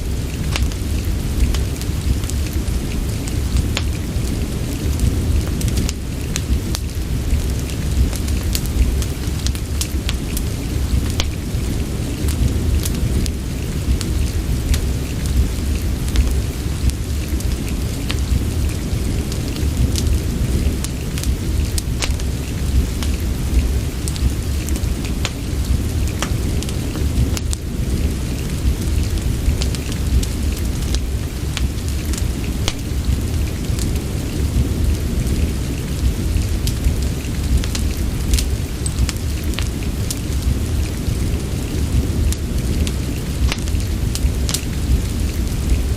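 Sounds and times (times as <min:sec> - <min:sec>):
fireplace crackling and popping: 0:00.0 - 0:45.9
steady rain rumble: 0:00.0 - 0:45.9.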